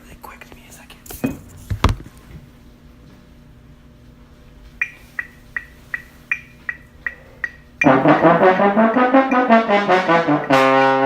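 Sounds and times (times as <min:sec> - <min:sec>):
sharp thumps: 0:01.1 - 0:02.4
high-pitched electronic ticks: 0:04.8 - 0:08.0.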